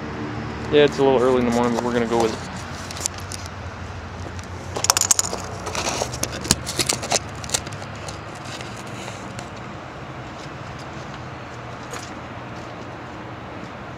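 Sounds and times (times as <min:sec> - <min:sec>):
car engine idling: 0:00.0 - 0:13.9
sharp clicks and crunches: 0:00.6 - 0:03.6, 0:04.2 - 0:09.7.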